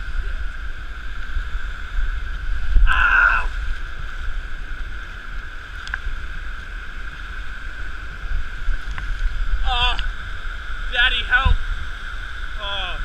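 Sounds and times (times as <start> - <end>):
low rumble on microphone: 0.0 - 13.0
waterfall rushing: 2.5 - 4.2, 7.0 - 13.0.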